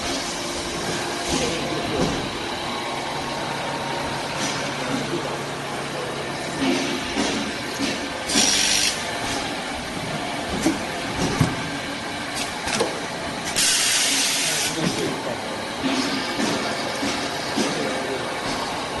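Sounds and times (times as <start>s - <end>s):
drilling machine running: 2.3s - 10.4s.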